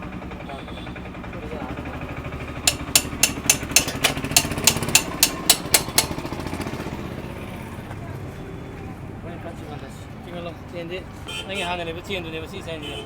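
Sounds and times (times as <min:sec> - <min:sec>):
motorcycle engine idling: 0:01.3 - 0:07.0
sharp knocks: 0:02.7 - 0:06.2.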